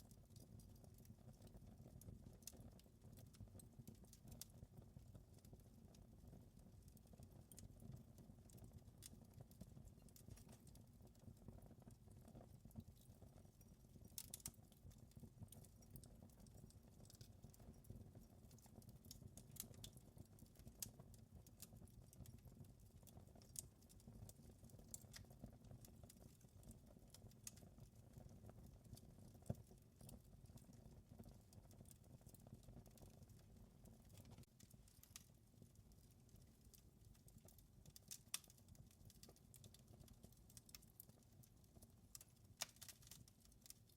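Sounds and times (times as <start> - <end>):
fire crackling and popping: 0.1 - 43.9.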